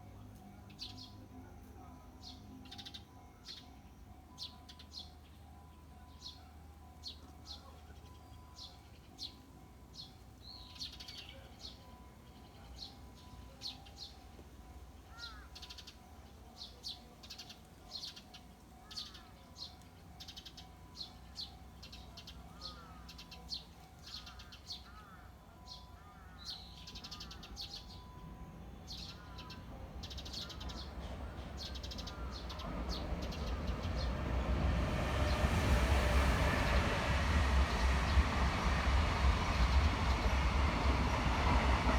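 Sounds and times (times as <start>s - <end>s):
train rumbling: 26.6s - 41.9s
small birds chirping: 28.8s - 41.9s.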